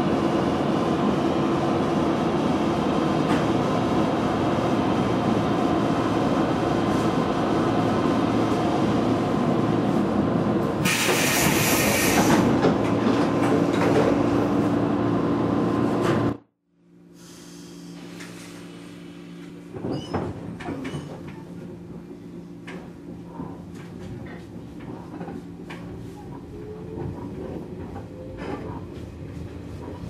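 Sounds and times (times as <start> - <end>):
train door air hiss: 10.8 - 12.5, 17.1 - 18.7
train interior hum: 17.5 - 30.0.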